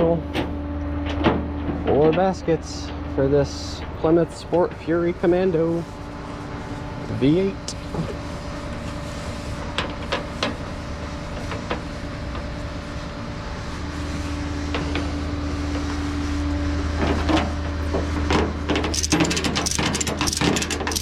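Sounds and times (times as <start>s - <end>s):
metallic clanks and knocks: 18.9s - 21.0s.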